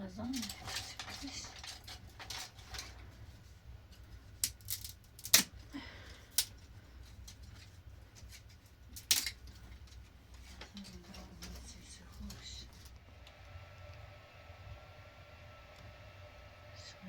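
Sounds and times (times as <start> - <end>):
low steady hum: 0.0 - 17.0
utensils and dishes clicking: 0.2 - 3.0.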